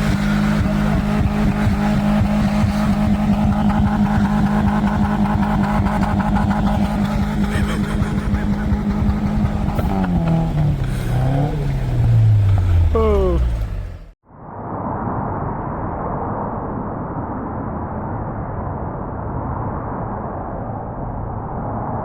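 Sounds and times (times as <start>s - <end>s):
car engine revving: 0.0s - 14.2s.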